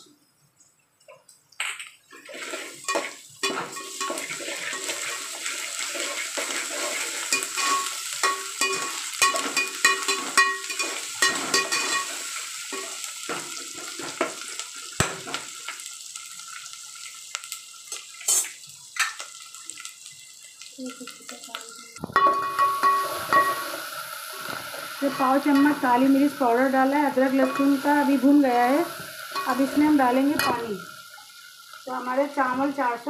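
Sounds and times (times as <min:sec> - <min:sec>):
onions sizzling in hot oil: 0:01.6 - 0:33.0
metal spoon scraping pot: 0:05.9 - 0:12.1.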